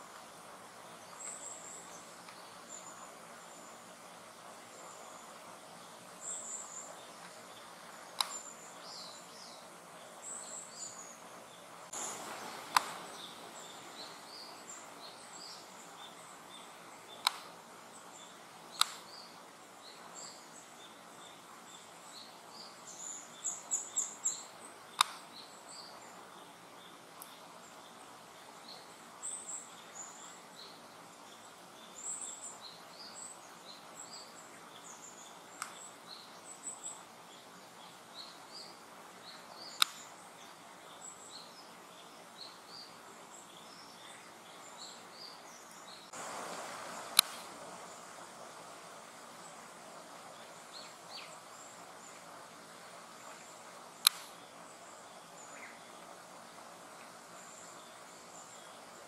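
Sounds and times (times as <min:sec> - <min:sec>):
small birds chirping: 0:00.0 - 0:59.0
sharp clicks: 0:08.2 - 0:08.4, 0:12.7 - 0:13.0, 0:17.2 - 0:17.6, 0:18.7 - 0:19.2, 0:25.0 - 0:25.3, 0:39.8 - 0:40.1, 0:47.2 - 0:47.5, 0:54.0 - 0:54.4.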